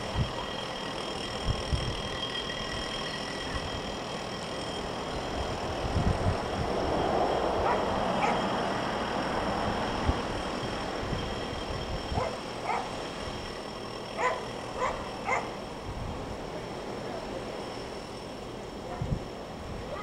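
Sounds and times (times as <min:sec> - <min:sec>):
diesel train rumbling: 0:00.0 - 0:20.0.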